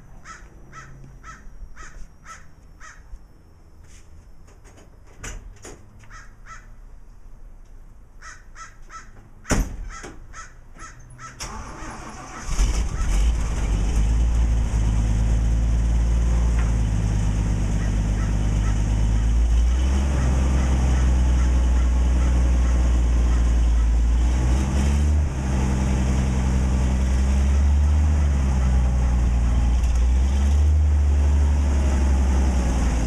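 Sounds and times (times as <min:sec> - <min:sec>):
crows cawing: 0:00.2 - 0:03.1, 0:06.1 - 0:06.8, 0:08.2 - 0:09.2, 0:09.9 - 0:11.5, 0:17.8 - 0:19.4, 0:20.2 - 0:24.0
thump: 0:09.5 - 0:10.2
car engine starting and idling: 0:11.4 - 0:33.0.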